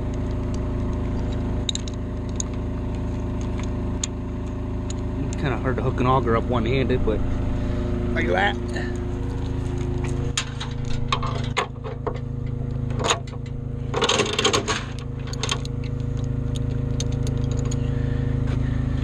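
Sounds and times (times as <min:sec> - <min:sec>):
metallic clanks and clicks: 0:00.0 - 0:05.5, 0:09.4 - 0:17.8
diesel engine running: 0:00.0 - 0:19.0
metal rattling: 0:08.7 - 0:17.8.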